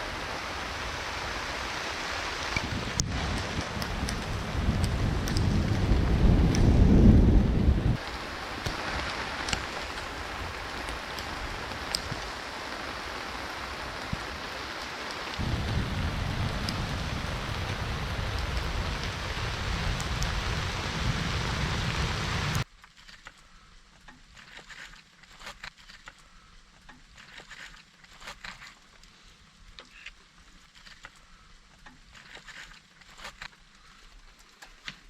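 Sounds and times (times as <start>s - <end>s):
steady rain falling: 0.0s - 35.0s
deep low rumble: 3.1s - 8.0s, 15.4s - 22.6s.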